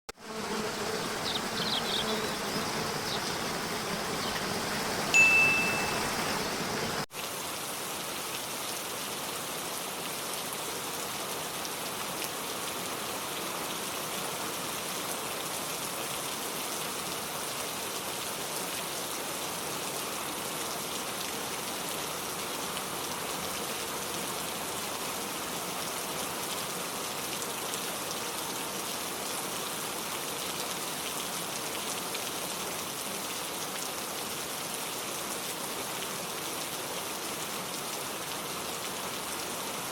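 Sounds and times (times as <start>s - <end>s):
rain falling in forest: 0.2s - 39.9s.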